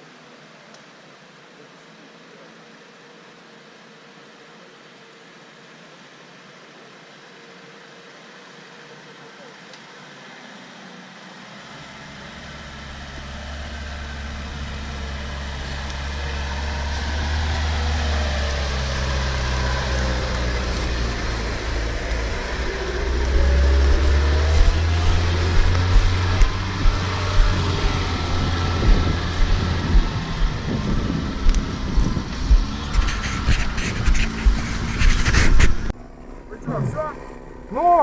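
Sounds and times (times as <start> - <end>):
off-road vehicle engine and road rumble: 0.0 - 38.0
regular thumps: 19.2 - 36.0.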